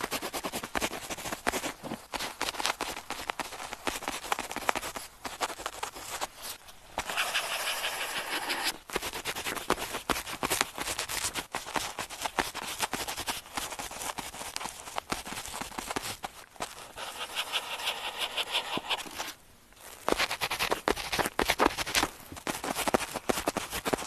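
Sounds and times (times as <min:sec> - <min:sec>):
pen scratching on paper: 0:07.0 - 0:08.8, 0:16.7 - 0:19.4.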